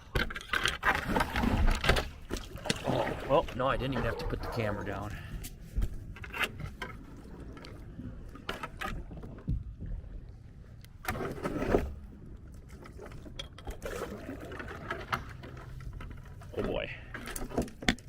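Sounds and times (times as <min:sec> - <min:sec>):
kayak scraping on branches: 0:00.8 - 0:07.5, 0:11.0 - 0:12.2.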